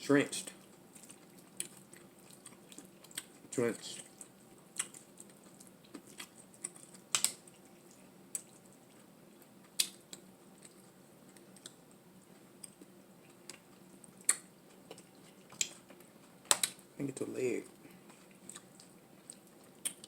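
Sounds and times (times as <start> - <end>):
crab shell cracking: 4.2 - 7.5, 16.5 - 16.8.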